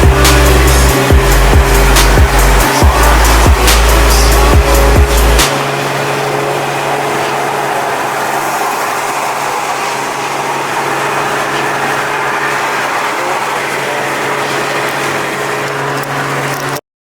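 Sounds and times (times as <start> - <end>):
car engine droning: 0.0 - 16.8.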